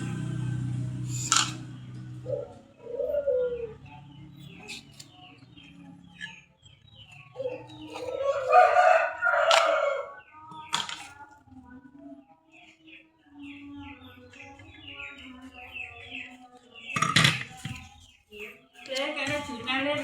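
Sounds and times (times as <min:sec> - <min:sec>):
small birds chirping: 0:01.0 - 0:20.0
rooster crowing: 0:07.4 - 0:10.2.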